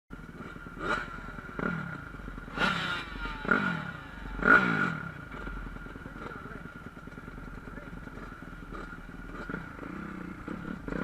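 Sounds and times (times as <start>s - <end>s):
dirt bike engines revving: 0.2s - 11.0s.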